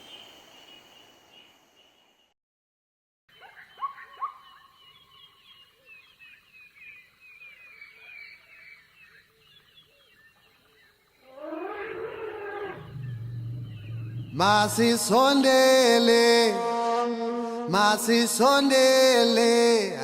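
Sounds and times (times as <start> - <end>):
rapid high wildlife chirping: 3.3 - 15.4
low steady hum: 12.7 - 15.8.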